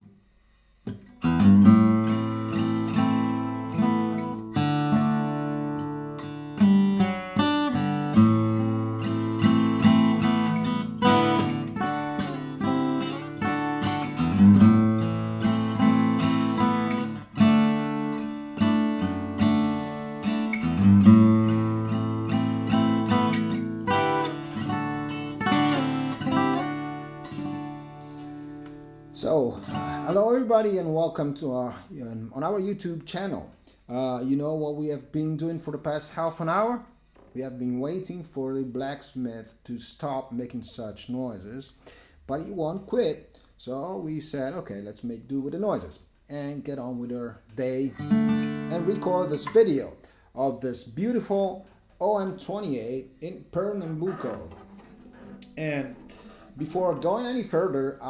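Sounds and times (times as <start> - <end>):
acoustic guitar playing: 0.9 - 31.3, 47.4 - 50.2, 51.0 - 58.0.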